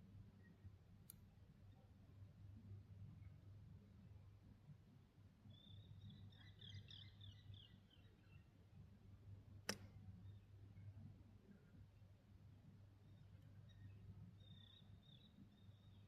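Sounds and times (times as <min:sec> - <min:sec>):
faint bird twittering: 0:05.5 - 0:08.5, 0:13.0 - 0:16.0
sharp click: 0:09.7 - 0:10.0.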